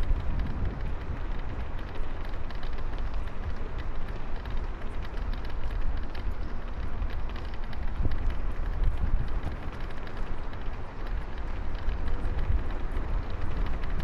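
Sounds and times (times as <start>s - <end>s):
light ticks: 0.0s - 14.0s
wind buffeting microphone: 0.0s - 14.0s.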